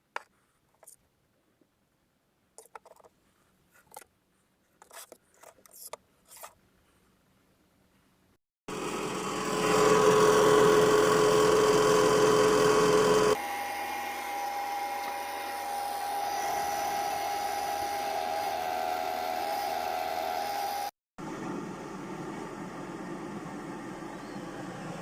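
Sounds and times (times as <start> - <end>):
extractor fan whining: 8.7 - 25.0.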